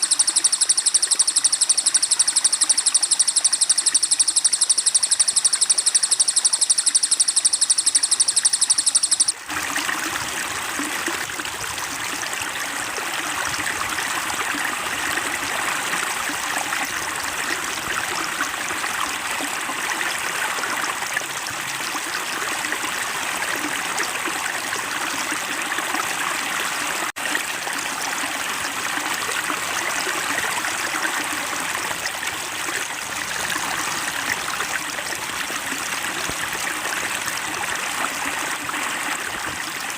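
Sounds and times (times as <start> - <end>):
songbird trilling: 0.0 - 9.4
stream flowing and trickling: 0.0 - 39.9.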